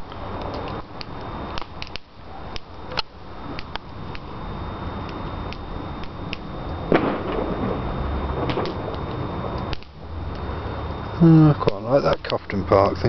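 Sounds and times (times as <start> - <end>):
bonfire crackling and popping: 0.0 - 13.0.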